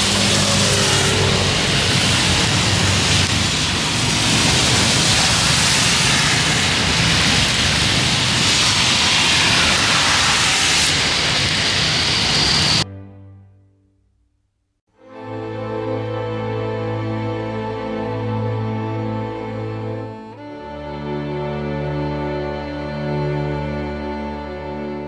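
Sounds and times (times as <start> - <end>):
heavy rain pouring: 0.0 - 12.8.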